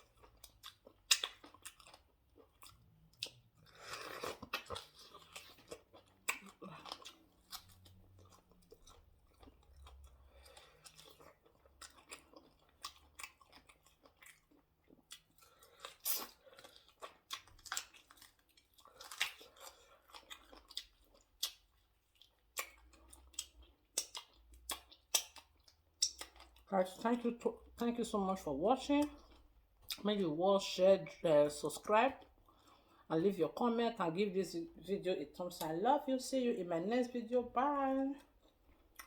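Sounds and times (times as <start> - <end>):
person chewing and smacking: 0.0 - 26.7, 29.0 - 30.2, 31.8 - 33.1, 38.2 - 39.0.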